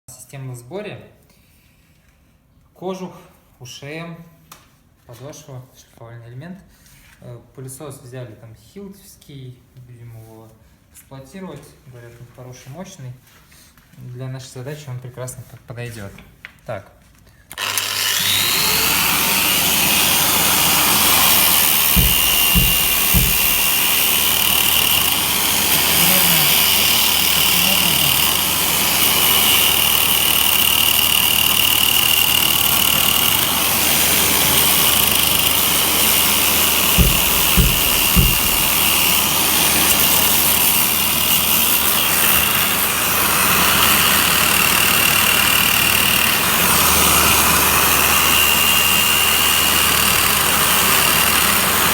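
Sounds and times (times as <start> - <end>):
vacuum drawing dust: 17.6 - 31.5
angle grinder sanding wood: 17.6 - 51.9
short low knocks: 21.6 - 24.2, 37.0 - 39.0.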